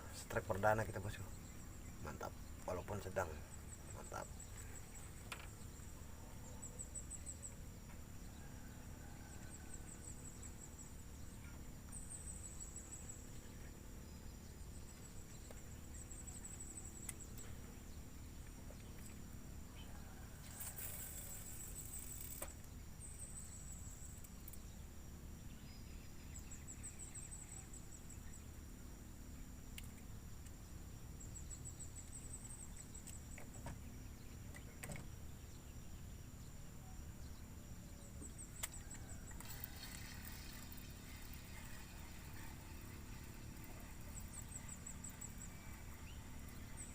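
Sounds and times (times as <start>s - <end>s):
insects droning: 0.0s - 46.9s
pulsed insect chirps: 20.4s - 24.7s, 38.3s - 46.9s.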